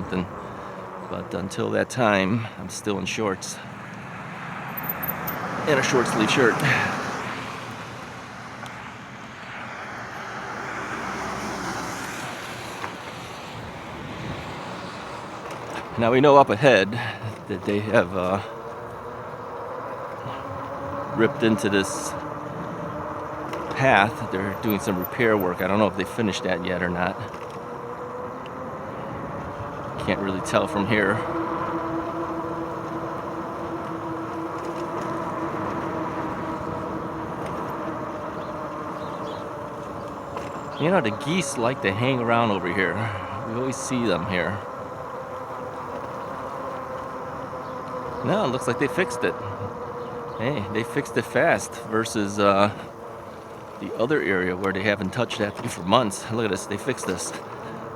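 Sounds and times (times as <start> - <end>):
bike tyres on path: 0.0 - 57.9
tires rolling on pavement: 0.0 - 57.9
electric motor hum: 3.8 - 57.9
wind noise: 10.1 - 19.2
wind on camera: 12.1 - 16.2.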